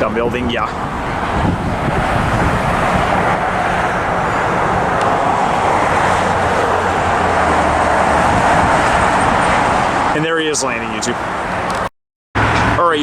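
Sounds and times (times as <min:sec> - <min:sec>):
jet airliner engines rushing: 0:00.0 - 0:13.0.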